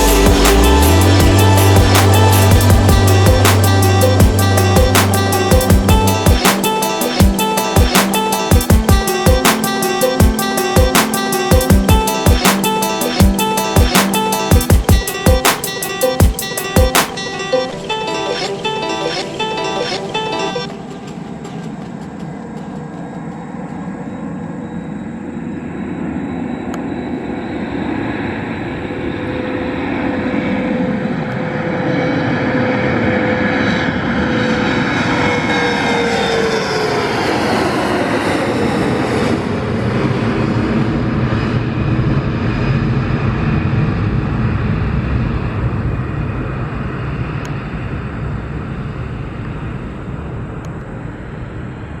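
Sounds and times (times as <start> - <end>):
jet engines passing by: 12.0 - 52.0.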